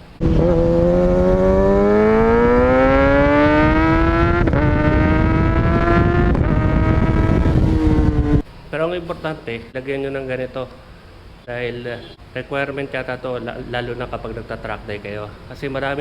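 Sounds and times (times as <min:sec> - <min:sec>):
wind and road rush: 0:00.0 - 0:08.5
motorcycle engine accelerating: 0:00.2 - 0:08.4.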